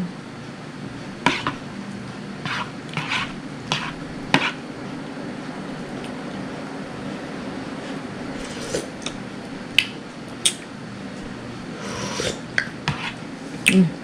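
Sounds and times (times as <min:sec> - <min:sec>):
steady low hum: 0:00.0 - 0:14.0
spoon scraping bowl: 0:02.4 - 0:04.6, 0:07.8 - 0:09.0, 0:11.8 - 0:13.2.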